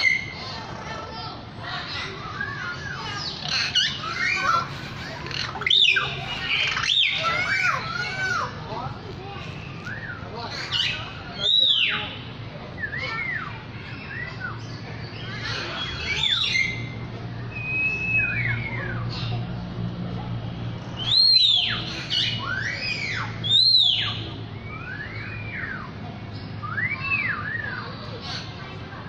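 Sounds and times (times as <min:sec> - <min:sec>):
bird singing whistled notes: 0:09.6 - 0:12.1, 0:12.8 - 0:19.1, 0:21.0 - 0:28.1.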